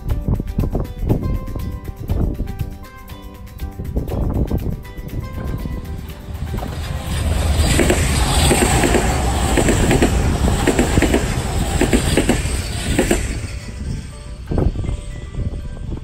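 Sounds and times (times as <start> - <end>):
train rushing past: 5.1 - 16.0
train wheels clacking over rail joints: 5.7 - 14.2.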